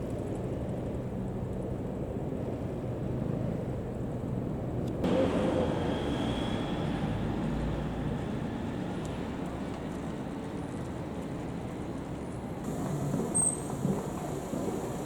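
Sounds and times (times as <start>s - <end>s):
vehicle engine rumbling: 0.5s - 15.0s
louder vehicle sound: 5.0s - 9.9s.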